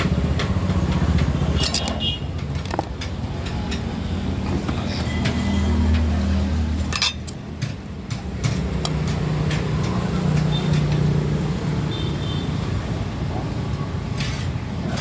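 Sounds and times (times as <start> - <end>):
clicks and knocks: 0.0 - 5.4
vehicle engine humming: 0.0 - 13.7
road traffic: 0.0 - 15.0.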